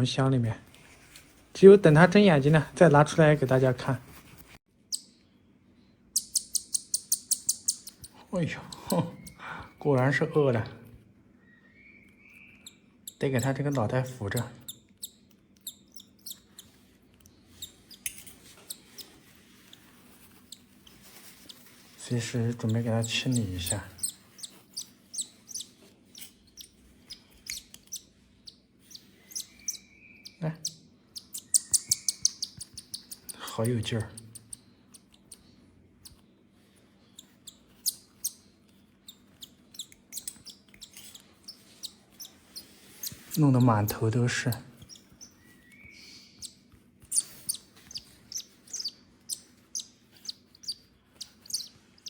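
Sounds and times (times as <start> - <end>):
nestling begging chirps: 6.1 - 10.7, 11.4 - 36.2, 37.0 - 52.0
bird chick cheeping: 6.2 - 9.8, 11.4 - 16.8, 22.7 - 33.5, 44.8 - 52.0.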